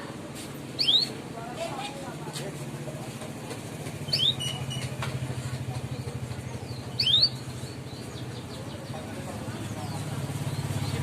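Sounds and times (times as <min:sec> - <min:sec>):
canary chirps: 0:00.7 - 0:02.0, 0:04.0 - 0:11.0.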